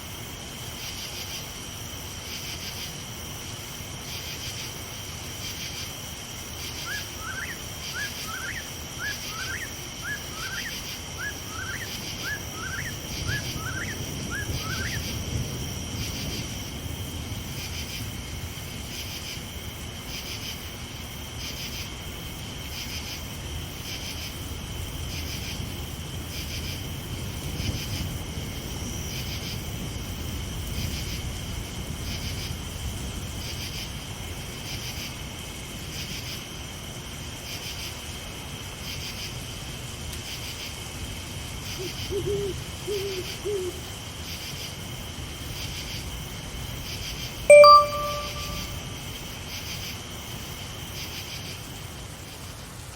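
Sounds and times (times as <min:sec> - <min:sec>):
crickets chirping: 0:00.0 - 0:52.9
short rising call note: 0:47.5 - 0:48.8.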